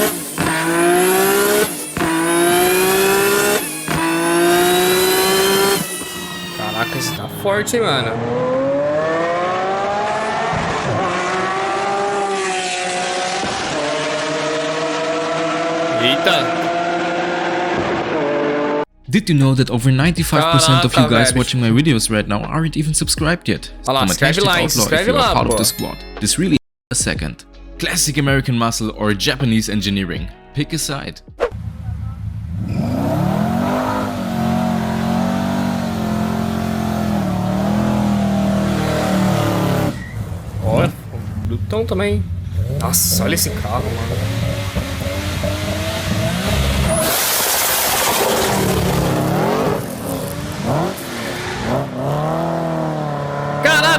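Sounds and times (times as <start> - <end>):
race car engine at full throttle: 0.0 - 18.9, 31.4 - 53.7.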